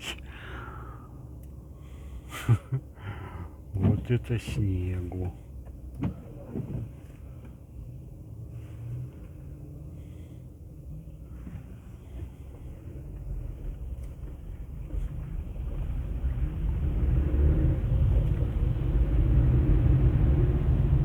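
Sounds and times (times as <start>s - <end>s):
engine and road noise in car: 0.0s - 21.0s.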